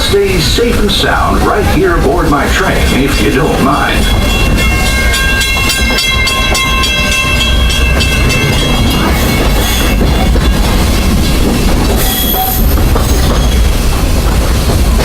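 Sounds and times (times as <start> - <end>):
train cars rumbling on track: 0.0 - 15.0
wheels clicking over rails: 4.0 - 15.0.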